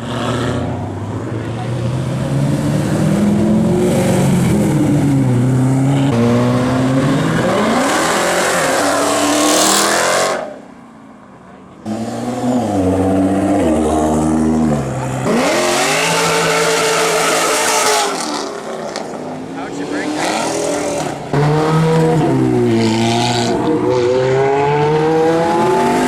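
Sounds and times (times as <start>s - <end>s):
another car engine revving: 1.8s - 10.6s, 11.8s - 26.0s
car engine accelerating hard: 11.8s - 26.0s.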